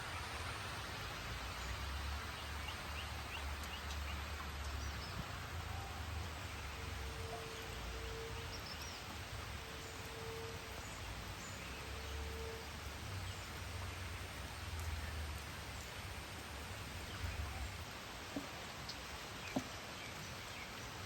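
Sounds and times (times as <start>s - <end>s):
steady hiss: 0.0s - 21.0s
long steady tones: 5.6s - 13.2s.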